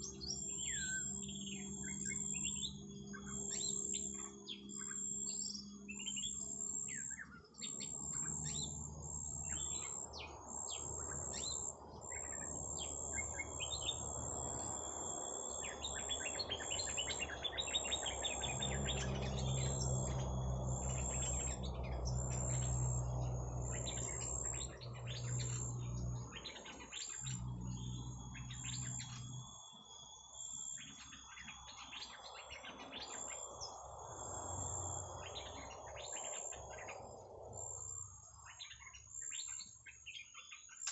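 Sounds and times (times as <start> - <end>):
low hum: 0.0 - 30.8
high-pitched pulsing buzz: 0.0 - 39.9
bird trill: 0.0 - 40.9
small birds chirping: 0.0 - 40.9.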